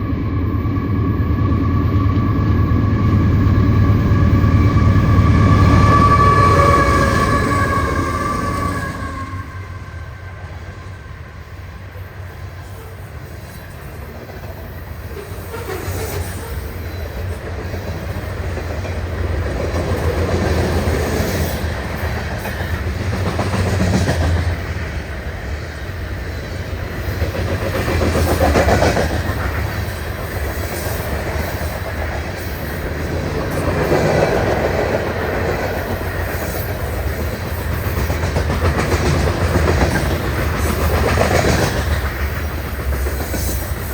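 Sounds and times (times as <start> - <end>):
freight train low rumble: 0.0 - 43.9
train wheels clicking over rail joints: 12.6 - 43.9.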